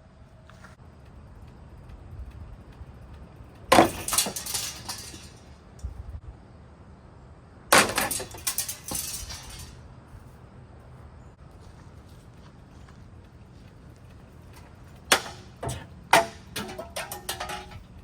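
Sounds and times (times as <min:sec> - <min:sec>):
ceiling fan being smashed: 0:03.7 - 0:05.4, 0:07.7 - 0:09.8, 0:15.1 - 0:18.0.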